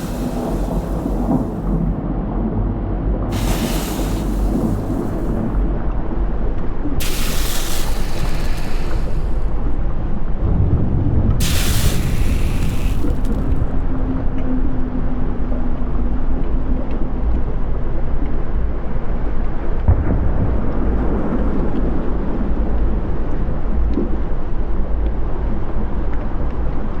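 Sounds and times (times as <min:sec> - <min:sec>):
hissing: 0:00.0 - 0:01.8, 0:03.3 - 0:05.7, 0:07.0 - 0:09.7, 0:11.4 - 0:13.7
volcanic eruption deep roar: 0:00.0 - 0:05.8, 0:10.4 - 0:13.9.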